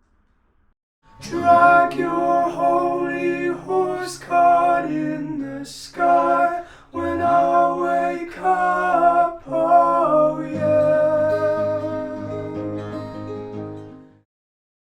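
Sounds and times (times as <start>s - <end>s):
acoustic guitar: 1.0s - 14.3s
person singing: 1.2s - 12.8s.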